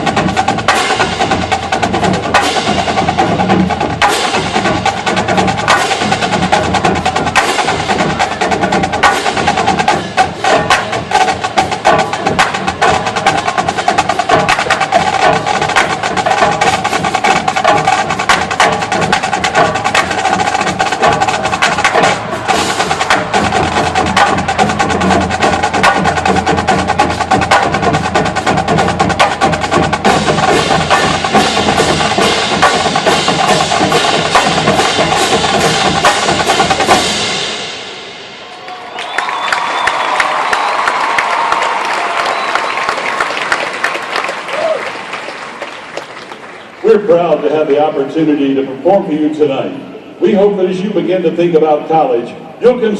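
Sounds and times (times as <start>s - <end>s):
marching percussion drumming: 0.0s - 38.4s.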